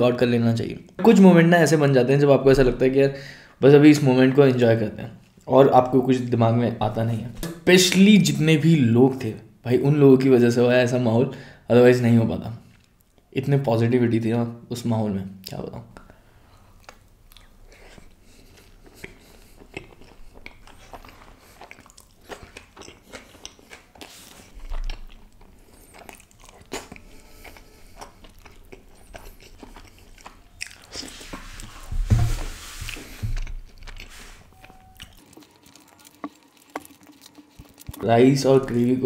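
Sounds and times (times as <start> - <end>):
wet chewing and mouth smacks: 16.7 - 31.7, 32.9 - 38.0.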